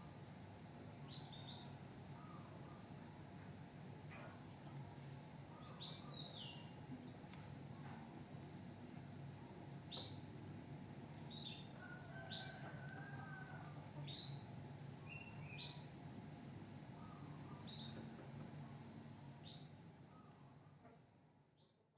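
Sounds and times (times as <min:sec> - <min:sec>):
low steady hum: 0:00.0 - 0:21.6.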